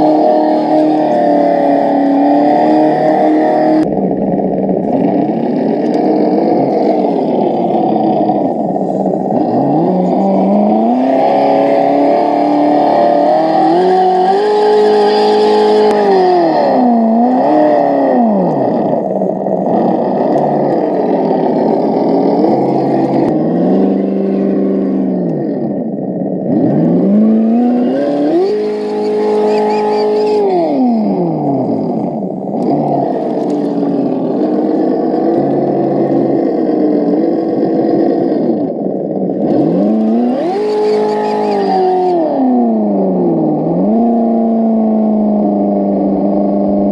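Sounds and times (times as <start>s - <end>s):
simulated truck engine revving: 0.0s - 46.9s.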